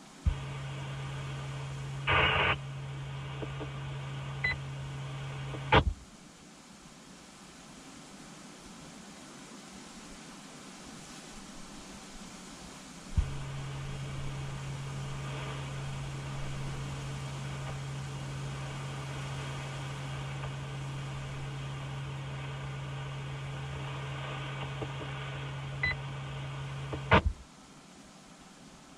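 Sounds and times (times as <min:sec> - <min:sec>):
radio receiver hiss: 0:00.0 - 0:06.5, 0:10.8 - 0:28.9
steady low hum: 0:00.0 - 0:07.2, 0:11.1 - 0:28.9
burst of radio static: 0:00.3 - 0:06.0, 0:13.1 - 0:27.4.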